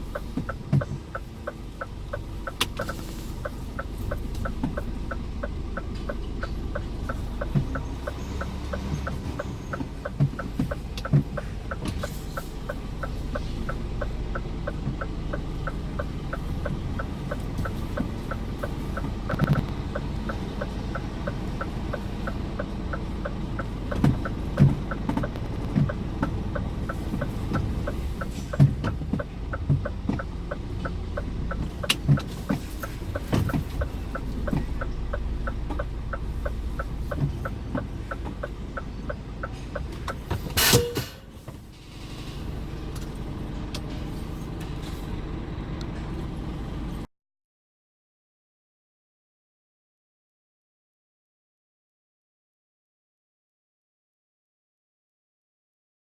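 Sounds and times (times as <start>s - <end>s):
truck indicator ticking: 0.0s - 41.7s
diesel engine running: 0.0s - 47.1s.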